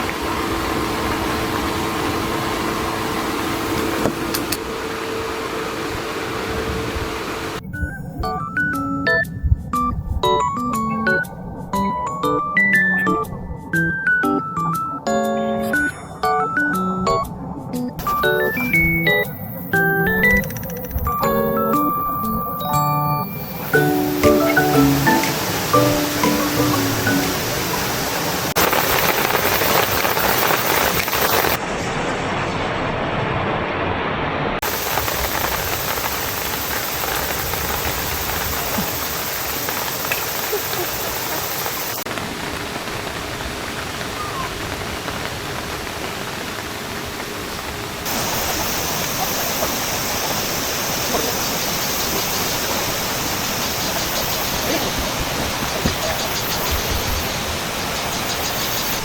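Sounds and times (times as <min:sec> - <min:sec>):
stream flowing: 0:00.0 - 0:07.6, 0:23.3 - 0:42.5, 0:44.6 - 0:59.0.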